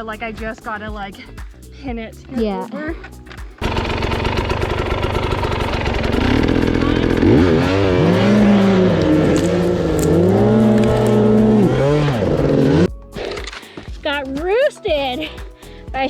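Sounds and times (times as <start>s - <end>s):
dirt bike engine revving: 3.6s - 12.9s.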